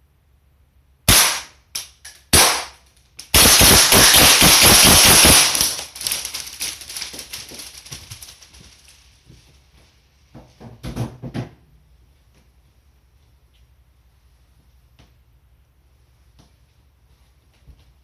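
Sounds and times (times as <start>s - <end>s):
airsoft pistol shots: 1.1s - 1.6s, 2.3s - 5.9s
rapid airsoft gunfire burst: 1.1s - 1.6s, 2.3s - 6.6s.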